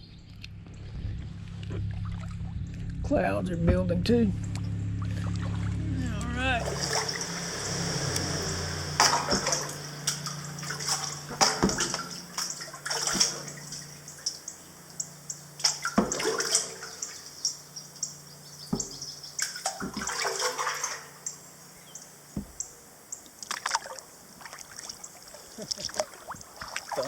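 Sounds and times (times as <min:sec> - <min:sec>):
water splashing and dripping: 0:04.5 - 0:27.0
paddle dipping into water: 0:06.6 - 0:15.0, 0:15.6 - 0:17.6, 0:18.6 - 0:21.2, 0:23.2 - 0:27.0.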